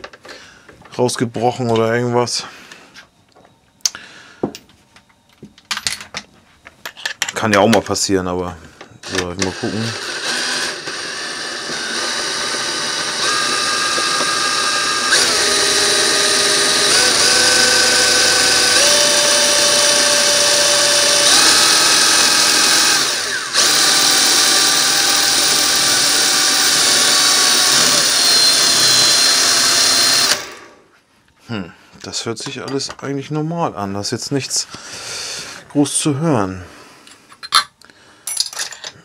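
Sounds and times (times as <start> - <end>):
cordless drill whining: 9.0 - 30.8
gearbox turning: 9.1 - 30.7.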